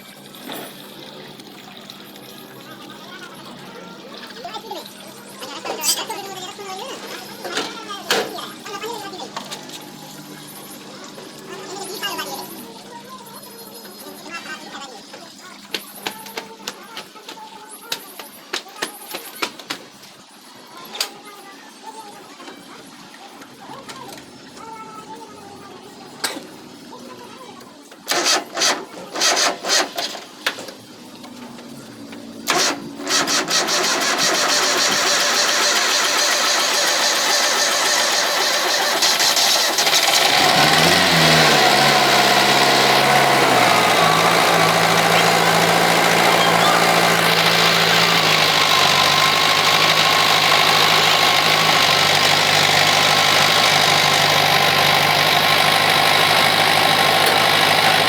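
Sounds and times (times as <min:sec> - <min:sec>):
tractor engine cranking: 0:28.1 - 0:58.0
engine knocks: 0:31.3 - 0:58.0
diesel engine idling: 0:31.4 - 0:58.0.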